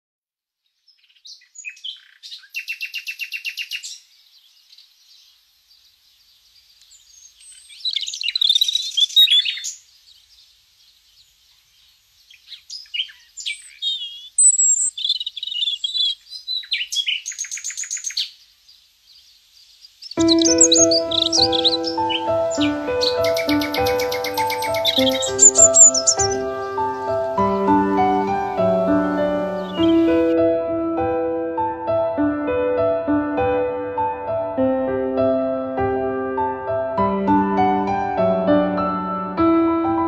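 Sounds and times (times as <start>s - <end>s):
small birds chirping and trilling: 0.6s - 30.4s.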